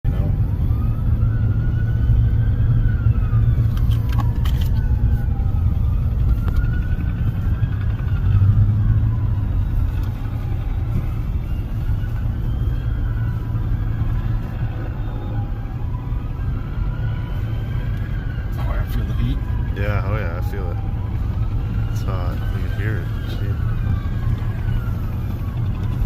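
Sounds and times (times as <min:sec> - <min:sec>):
emergency sirens wailing: 0:00.0 - 0:26.0
road traffic rumble: 0:00.0 - 0:26.0.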